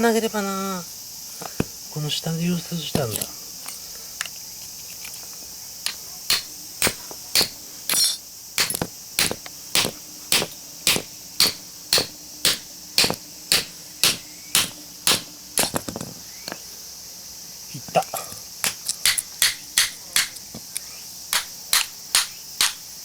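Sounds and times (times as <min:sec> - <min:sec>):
hammer striking chisel on steel: 0:06.3 - 0:15.8, 0:19.0 - 0:20.4, 0:21.3 - 0:22.8.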